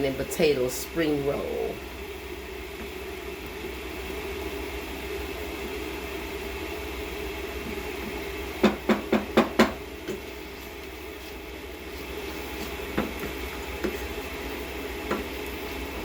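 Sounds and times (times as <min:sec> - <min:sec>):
low hiss of food cooking: 0:00.0 - 0:16.0
utensil knocking on pan: 0:08.6 - 0:10.2.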